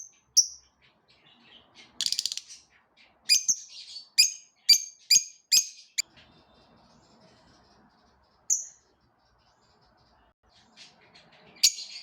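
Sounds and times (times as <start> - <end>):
lovebirds chirping: 0.0 - 12.0
rapid rattling bird chatter: 0.8 - 2.7.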